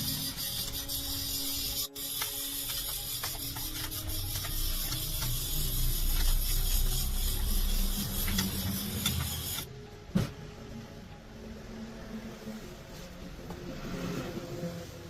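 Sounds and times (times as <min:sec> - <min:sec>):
machine running with hiss: 0:00.0 - 0:09.7.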